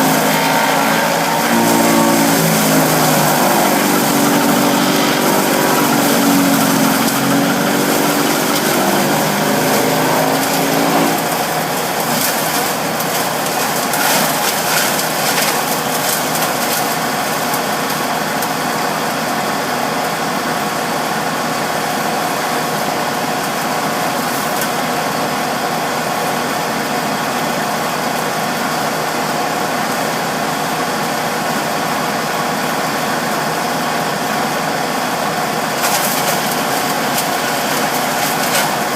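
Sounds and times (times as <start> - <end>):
pitched hum: 0.0 - 13.2
wood chipper running: 0.0 - 38.9
cracks and rattles: 11.9 - 18.0, 35.8 - 38.9.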